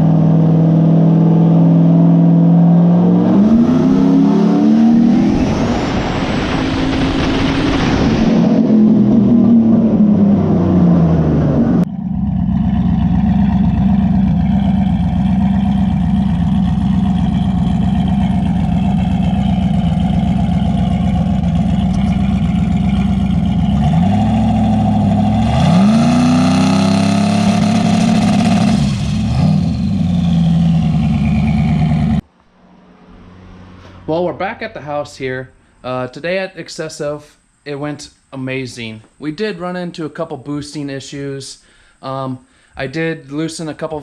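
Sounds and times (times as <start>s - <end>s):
truck engine idling and revving: 0.0s - 34.1s.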